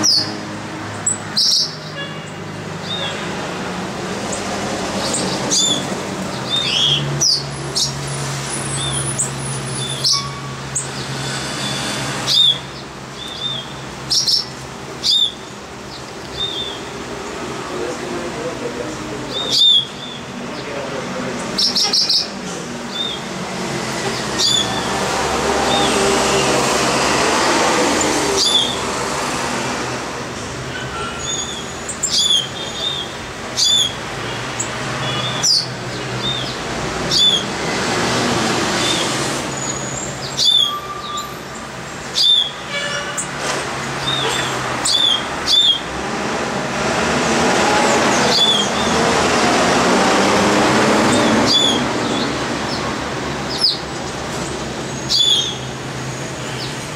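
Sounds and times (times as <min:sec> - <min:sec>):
city traffic: 0:00.0 - 0:56.9
bird chirping: 0:01.0 - 0:02.0, 0:05.0 - 0:08.0, 0:12.2 - 0:17.0, 0:19.3 - 0:20.8, 0:21.4 - 0:23.3, 0:30.9 - 0:34.0, 0:39.6 - 0:41.4, 0:42.0 - 0:42.6, 0:44.0 - 0:45.9, 0:51.1 - 0:54.0, 0:54.9 - 0:55.7.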